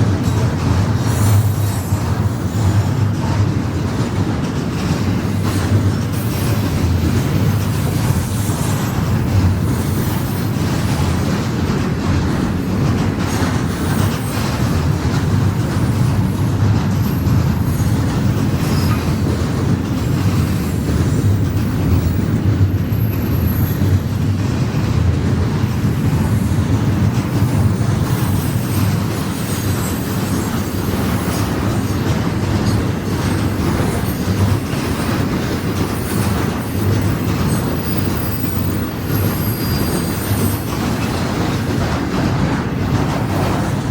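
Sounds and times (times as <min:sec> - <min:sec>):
train wheels rumbling on rails: 0:00.0 - 0:43.9
faint wheel squeal: 0:37.0 - 0:41.2.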